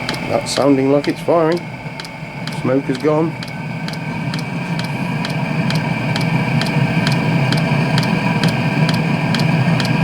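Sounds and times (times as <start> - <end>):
fan whining: 0.0 - 10.0
fuel pump ticking: 0.0 - 10.0
heater combustion rumble: 0.0 - 10.0.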